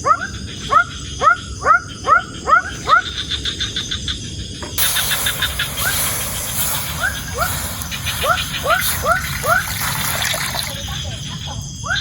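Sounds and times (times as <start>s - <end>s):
steady hiss: 4.7s - 11.8s.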